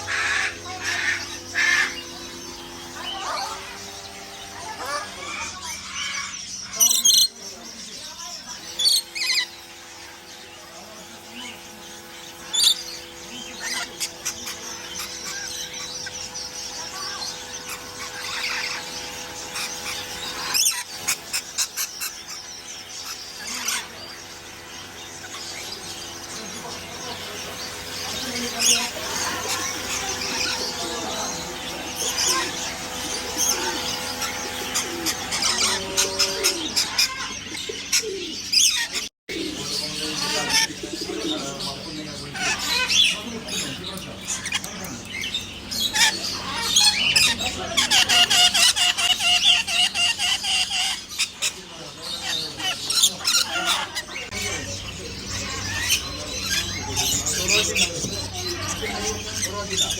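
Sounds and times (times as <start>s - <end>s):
steady hum: 0.0s - 47.9s, 50.8s - 59.9s
caged birds chirping: 0.0s - 59.9s.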